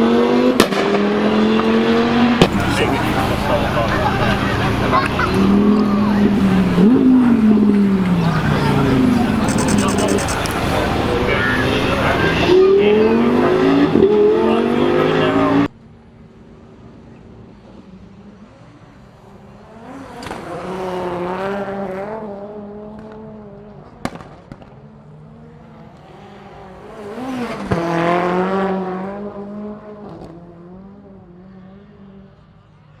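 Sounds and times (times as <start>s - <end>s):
rally cars passing: 0.0s - 33.0s
sharp crack: 0.5s - 1.7s, 2.4s - 3.0s.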